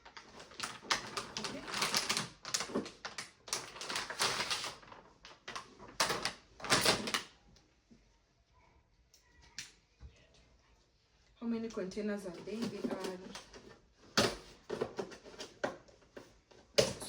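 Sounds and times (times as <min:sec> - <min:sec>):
plastic containers clattering: 0:00.0 - 0:07.3, 0:12.3 - 0:17.0.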